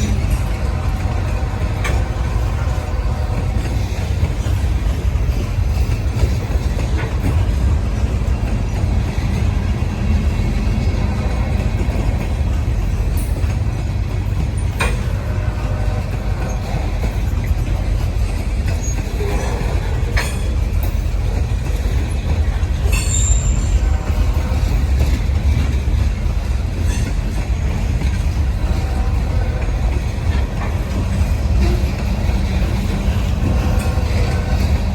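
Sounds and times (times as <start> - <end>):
freight train rumbling past: 0.0 - 34.9
wheels and couplers clanking: 0.0 - 34.9
high wheel squeal: 22.8 - 24.2.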